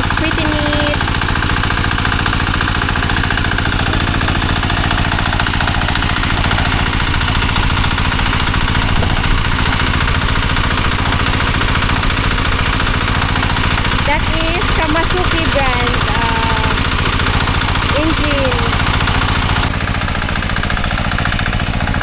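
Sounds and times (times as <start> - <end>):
small engine running steadily: 0.0 - 22.0.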